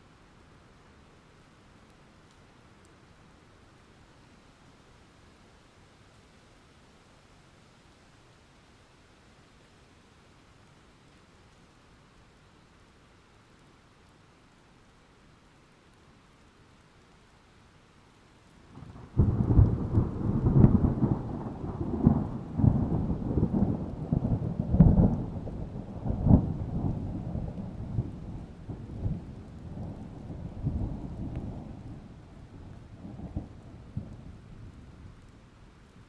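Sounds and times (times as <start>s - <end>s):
rain falling: 0.0s - 36.0s
thunder rolling and cracking: 18.8s - 31.9s.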